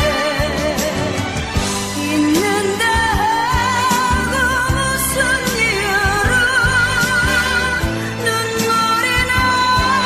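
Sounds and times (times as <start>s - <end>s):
band accompaniment: 0.0s - 10.0s.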